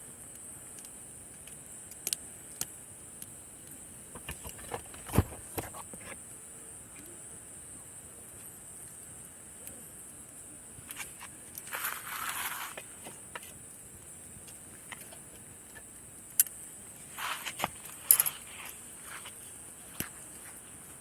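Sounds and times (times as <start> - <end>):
insect chirring: 0.0 - 21.0
campfire pops: 0.2 - 6.3, 8.3 - 18.9
short rustling bursts: 17.0 - 19.6.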